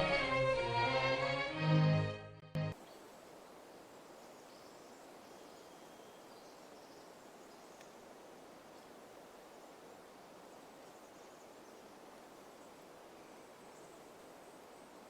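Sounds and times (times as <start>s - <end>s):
orchestral string music: 0.0s - 2.8s
faint outdoor ambience hiss: 2.8s - 15.0s.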